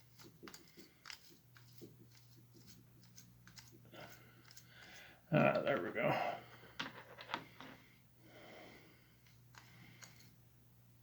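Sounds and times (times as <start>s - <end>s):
tool clicking and scratching: 0.0s - 5.0s.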